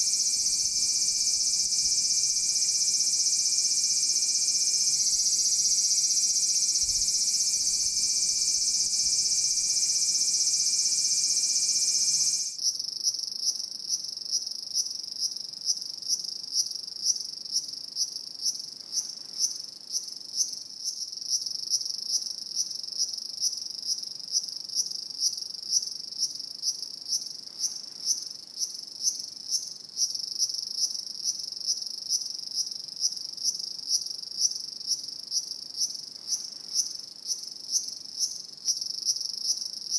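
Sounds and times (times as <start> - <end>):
crickets trilling: 0.0 - 12.6
cricket chirping: 0.0 - 39.9.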